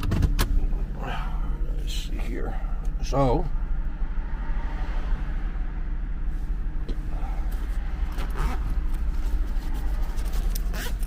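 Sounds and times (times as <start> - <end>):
car engine idling: 0.0 - 11.0
rustling handling noises: 7.5 - 11.0.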